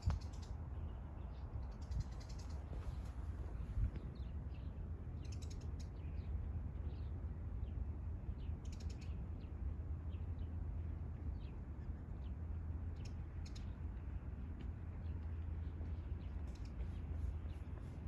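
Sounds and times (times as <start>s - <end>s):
small birds chirping: 0.0s - 18.0s
steady low rumble: 0.0s - 18.0s.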